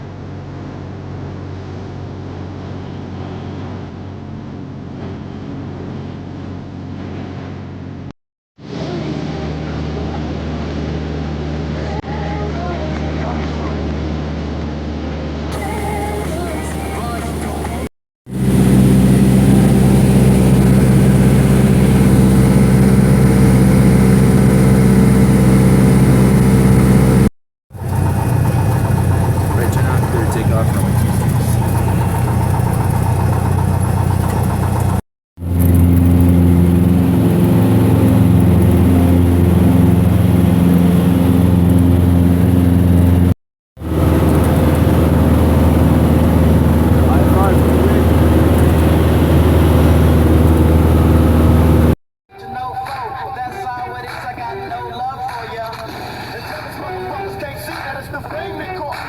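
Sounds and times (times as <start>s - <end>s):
propeller airplane engine drone: 0.0s - 11.8s, 13.8s - 54.3s
airflow hiss: 15.6s - 18.6s.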